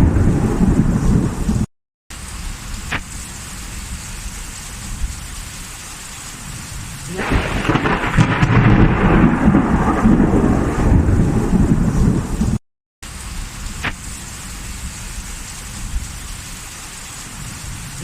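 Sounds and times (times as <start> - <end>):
rolling thunder rumble: 0.0 - 1.7, 7.1 - 12.6
steady rain: 0.0 - 18.0.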